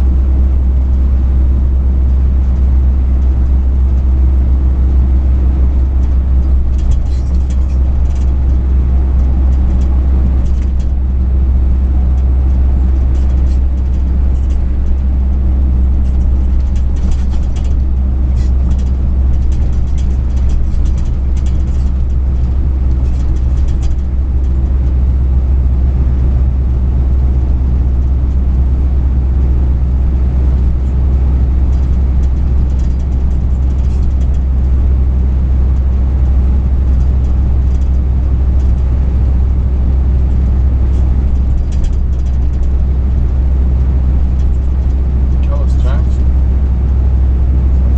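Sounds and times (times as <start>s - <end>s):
truck engine and road noise: 0.0s - 47.9s
faint light rattles: 5.8s - 11.1s, 12.0s - 25.0s, 31.7s - 34.8s, 40.3s - 47.0s.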